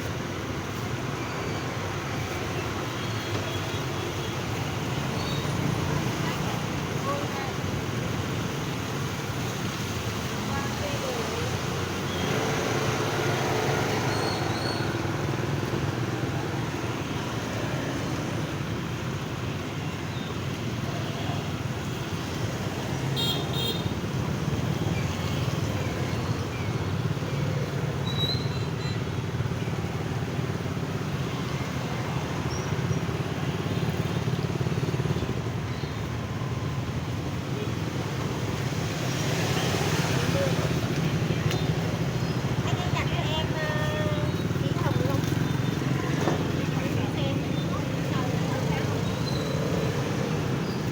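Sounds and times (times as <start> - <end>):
motorbikes and traffic passing: 0.0 - 50.9.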